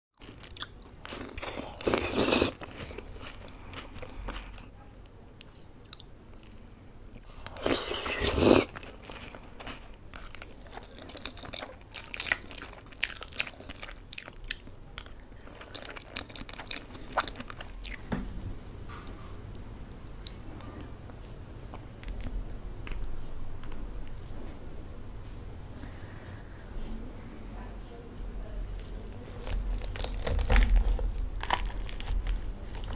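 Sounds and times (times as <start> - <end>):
crunching bites: 29.4 - 32.9.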